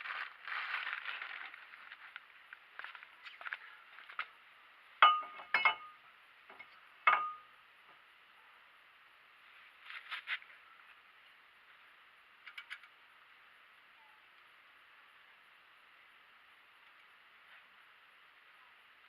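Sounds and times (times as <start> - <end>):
metal tools clinking: 5.0 - 6.0.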